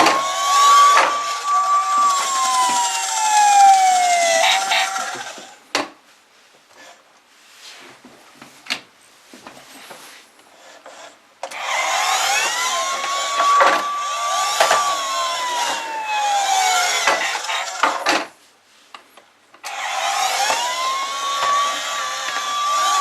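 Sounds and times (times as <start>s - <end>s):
toy electronic siren wailing: 0.0s - 5.6s, 11.6s - 18.0s, 19.7s - 23.0s.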